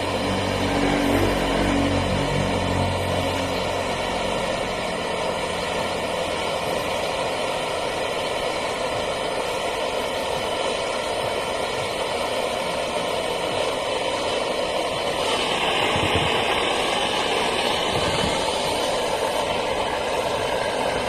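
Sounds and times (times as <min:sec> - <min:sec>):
vehicle engine idling: 0:00.0 - 0:09.7
higher hiss: 0:00.0 - 0:21.0.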